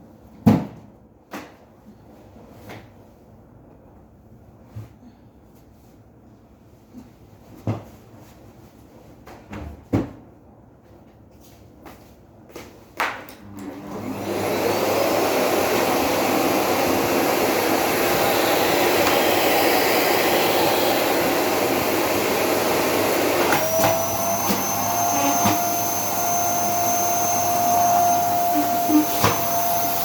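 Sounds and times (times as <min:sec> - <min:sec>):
vacuum cleaner motor running: 0:13.4 - 0:30.0.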